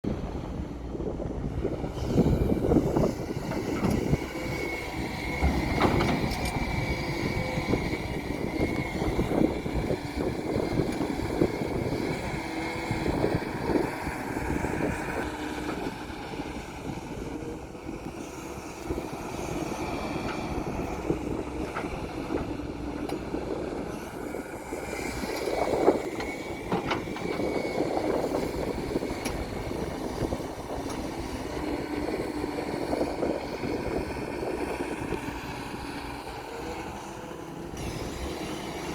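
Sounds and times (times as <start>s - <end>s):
diesel engines droning: 0.1s - 38.9s
knocks and clanks: 5.3s - 6.6s.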